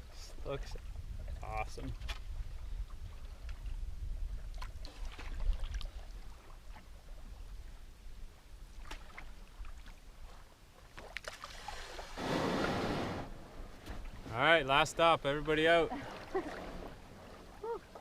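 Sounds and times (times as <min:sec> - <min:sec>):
paddle knocks and drips: 0:00.8 - 0:06.9, 0:08.8 - 0:11.7, 0:13.7 - 0:14.4
rushing water noise: 0:11.5 - 0:18.0.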